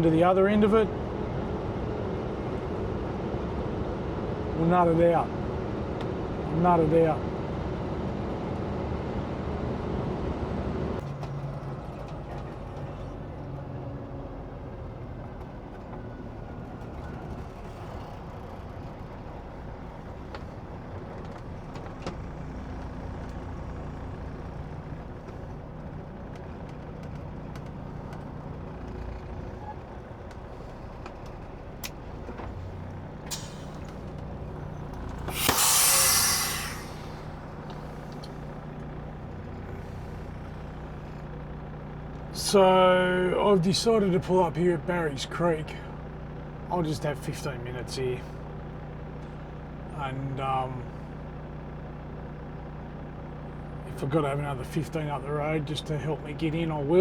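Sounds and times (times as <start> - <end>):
truck diesel engine running: 0.0 - 57.0
air brakes hissing: 32.7 - 38.6.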